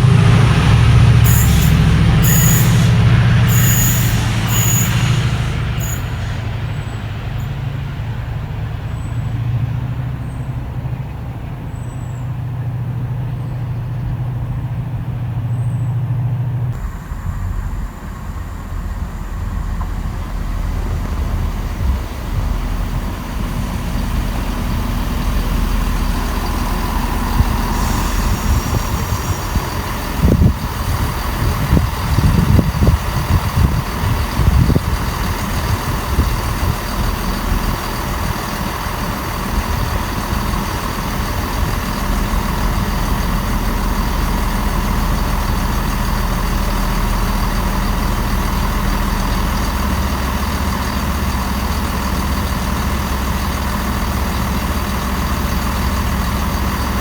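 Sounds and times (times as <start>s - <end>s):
diesel train engine idling: 0.0s - 57.0s
short hiss: 1.3s - 7.0s.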